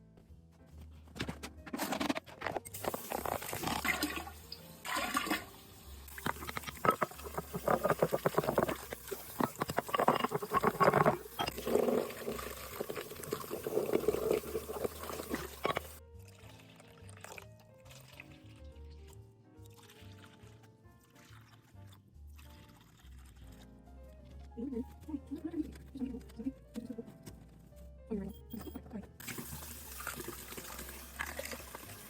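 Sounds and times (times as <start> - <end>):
water running and splashing: 2.7 - 16.0, 29.2 - 32.0
water dripping: 3.0 - 18.2.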